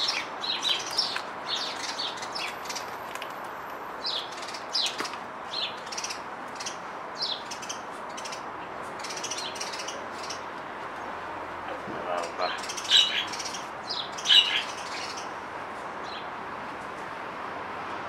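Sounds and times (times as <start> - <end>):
small birds chirping: 0.0 - 3.0, 4.0 - 11.1, 11.7 - 15.4.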